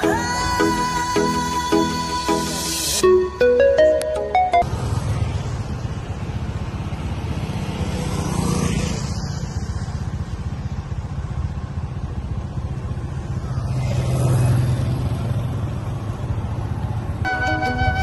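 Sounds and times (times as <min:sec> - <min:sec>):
vehicle rumbling on road: 0:04.6 - 0:18.0.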